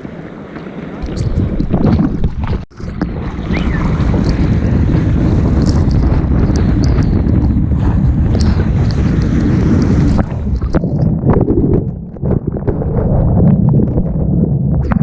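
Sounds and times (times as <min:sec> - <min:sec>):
rushing surf water: 0:00.0 - 0:10.9
wind buffeting camera: 0:00.0 - 0:15.0
muffled underwater gurgling: 0:01.0 - 0:15.0.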